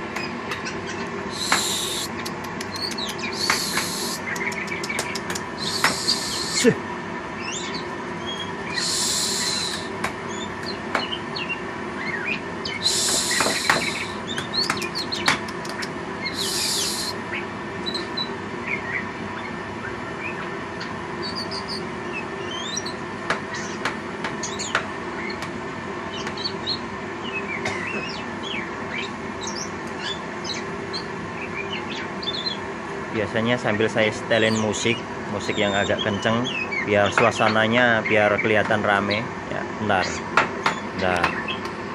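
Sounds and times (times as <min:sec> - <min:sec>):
bird chirping and twittering: 0:00.2 - 0:06.7, 0:07.4 - 0:23.8, 0:24.4 - 0:25.4, 0:26.1 - 0:32.6, 0:34.4 - 0:39.2
faint steady hum: 0:01.0 - 0:40.3
short hissy bursts: 0:01.3 - 0:02.2, 0:03.4 - 0:04.2, 0:05.6 - 0:06.6, 0:08.8 - 0:09.9, 0:12.8 - 0:14.2, 0:16.4 - 0:17.2.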